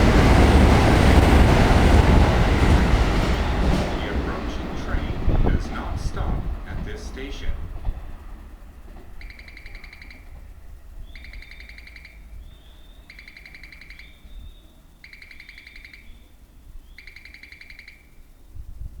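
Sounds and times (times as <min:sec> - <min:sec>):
buzzy trilling chirp call: 0:09.2 - 0:18.6.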